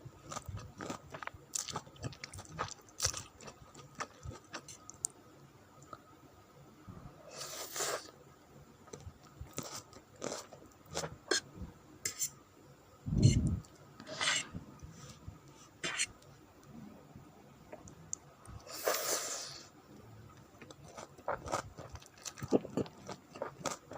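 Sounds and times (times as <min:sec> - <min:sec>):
chewing and mouth clicks: 0:00.3 - 0:05.1.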